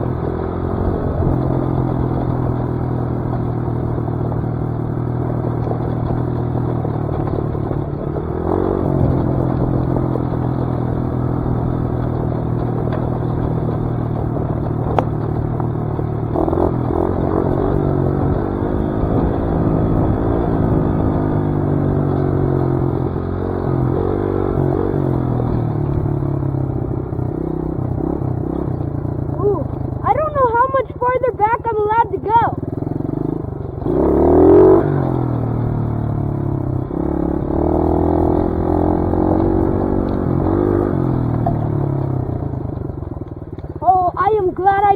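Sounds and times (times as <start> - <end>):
dirt bike engine revving: 8.1 - 26.4, 27.3 - 42.6.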